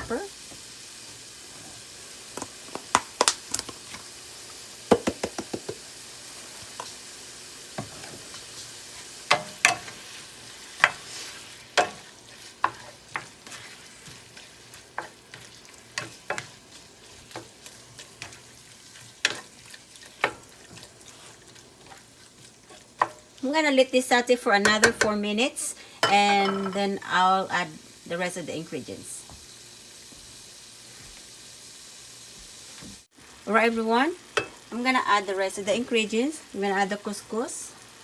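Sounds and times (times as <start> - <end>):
chicken and onions sizzling in oil: 0.0 - 38.0
utensil scraping against pan: 7.8 - 23.2.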